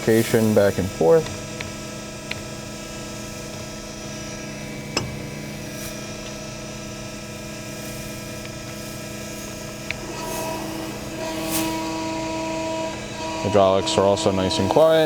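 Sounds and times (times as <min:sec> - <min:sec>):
surface grinder humming: 0:00.0 - 0:15.0.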